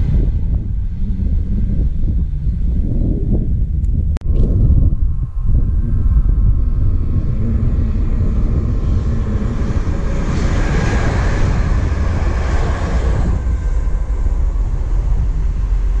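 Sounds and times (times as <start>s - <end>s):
steady low rumble: 0.0s - 16.0s
train wheels rushing on rails: 7.0s - 16.0s.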